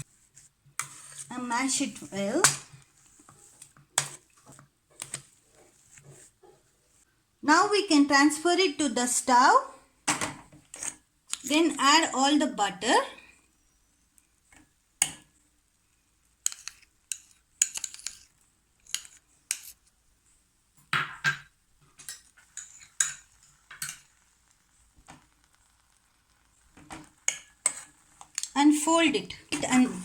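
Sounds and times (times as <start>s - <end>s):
utensil scraping a pot: 0.0s - 2.3s, 10.7s - 11.6s, 16.4s - 19.9s, 22.0s - 28.6s, 29.2s - 30.0s.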